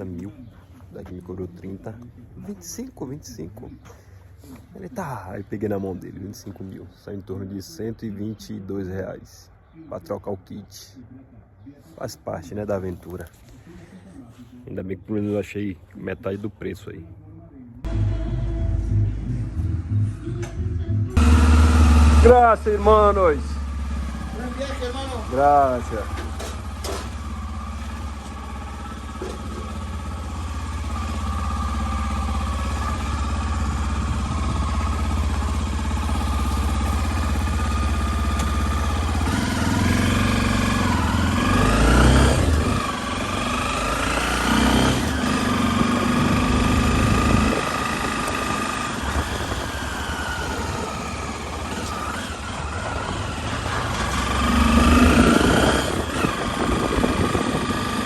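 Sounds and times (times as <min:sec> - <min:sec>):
motorcycle engine revving: 0:17.8 - 0:58.0.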